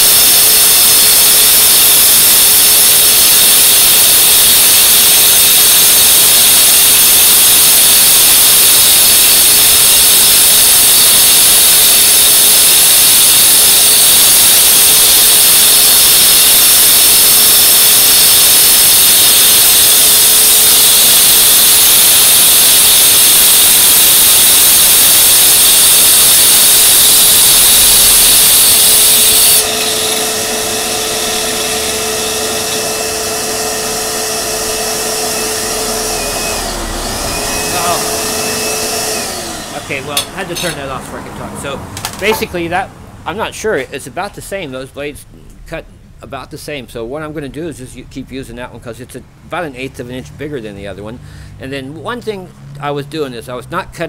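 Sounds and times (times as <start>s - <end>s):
dust vacuum running: 0.0s - 41.3s
power saw cutting concrete: 0.0s - 41.3s.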